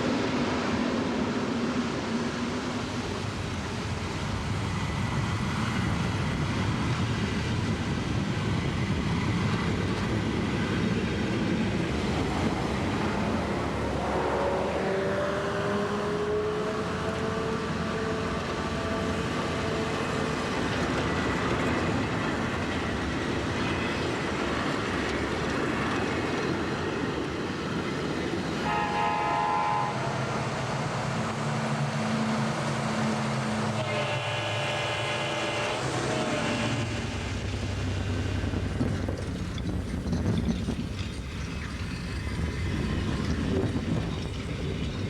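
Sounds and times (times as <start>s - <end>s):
train rumbling: 0.0s - 45.0s
train horn blasts: 16.3s - 20.2s, 28.6s - 30.5s, 33.0s - 37.3s.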